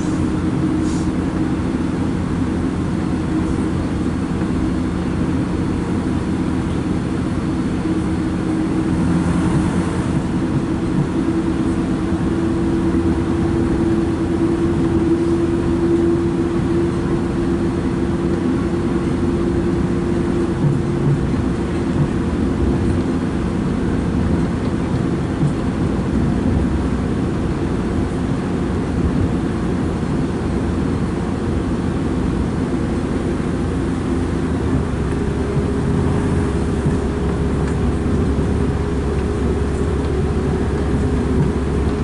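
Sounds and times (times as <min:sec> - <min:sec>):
steady hum: 0:00.0 - 0:42.0
train engine running: 0:00.0 - 0:42.0
wheels rumbling on rails: 0:00.0 - 0:42.0.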